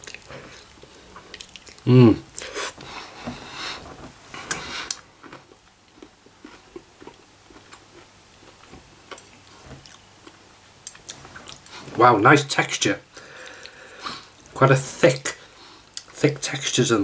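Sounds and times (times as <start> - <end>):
person chewing noodles: 0.0 - 3.8, 4.4 - 12.0, 13.2 - 14.6.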